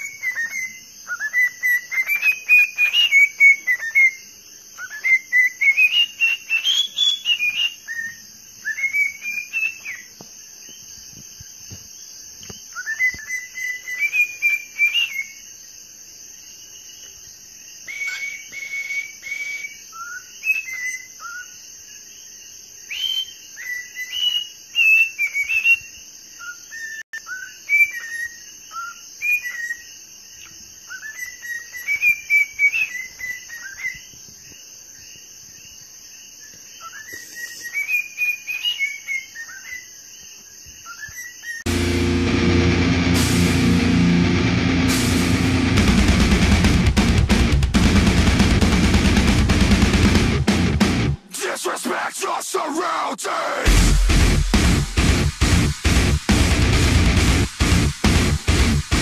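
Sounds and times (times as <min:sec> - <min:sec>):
bird whistling gliding notes: 0:00.0 - 0:10.1, 0:12.6 - 0:15.4, 0:17.8 - 0:21.5.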